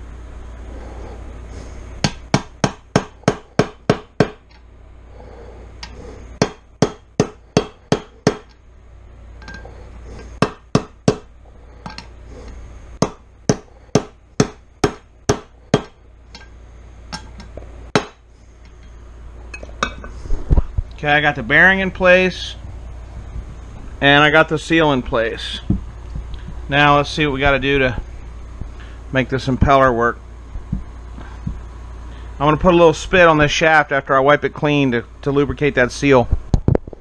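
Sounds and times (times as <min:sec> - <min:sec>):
hammer tapping a bearing: 0:02.0 - 0:04.6, 0:05.8 - 0:08.6, 0:09.4 - 0:12.1, 0:13.0 - 0:16.5, 0:17.1 - 0:18.2.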